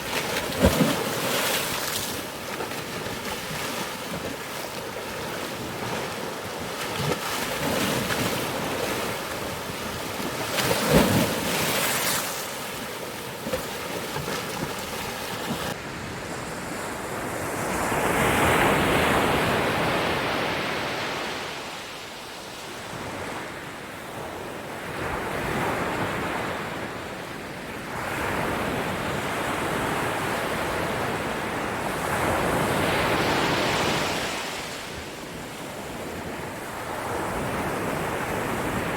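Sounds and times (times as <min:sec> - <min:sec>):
ocean waves breaking: 0:00.0 - 0:15.8
sharp splash: 0:00.0 - 0:15.8.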